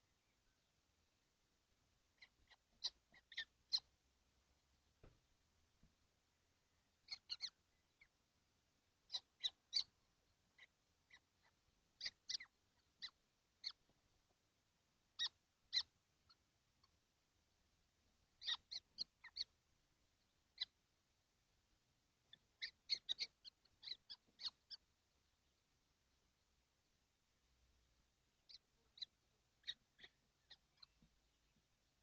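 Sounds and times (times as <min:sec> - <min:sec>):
young kestrels calling: 0:02.1 - 0:03.9, 0:06.7 - 0:08.2, 0:09.0 - 0:14.0, 0:15.1 - 0:17.0, 0:18.3 - 0:19.6, 0:20.2 - 0:20.8, 0:22.2 - 0:24.9, 0:28.4 - 0:32.0.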